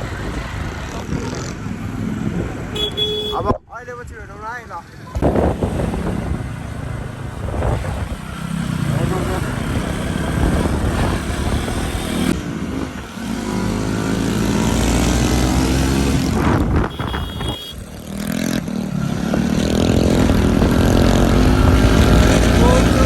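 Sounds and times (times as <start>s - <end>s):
motorbike engine running: 16.8s - 17.8s.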